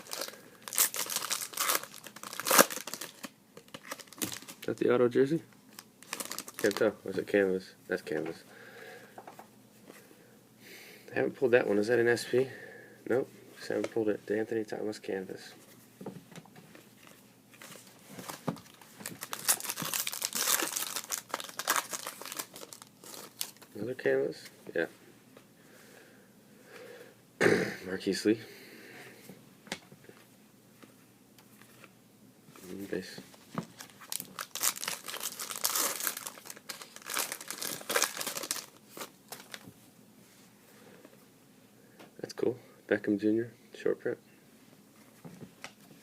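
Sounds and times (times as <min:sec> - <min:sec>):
foil wrapper crinkling and tearing: 0:00.0 - 0:04.8, 0:05.7 - 0:06.9, 0:18.6 - 0:23.7, 0:33.7 - 0:39.6.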